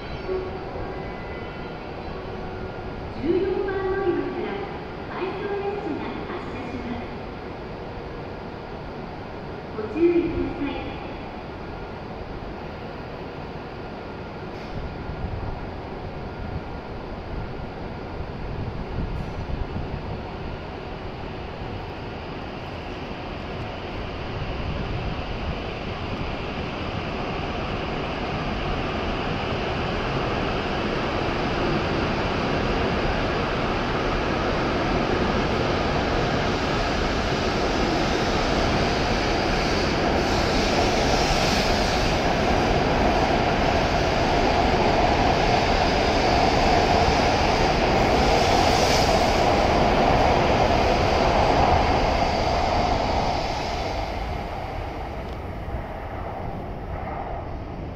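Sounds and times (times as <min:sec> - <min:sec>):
high-speed train running noise: 0:00.0 - 0:57.9
brief hissing: 0:14.5 - 0:14.9.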